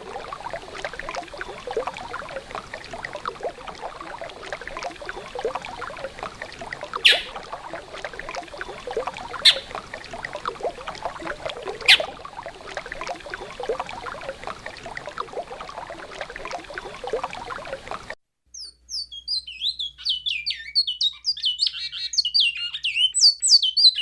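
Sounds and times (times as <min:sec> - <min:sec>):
sharp high sounds: 0:07.1 - 0:07.3, 0:09.5 - 0:09.7.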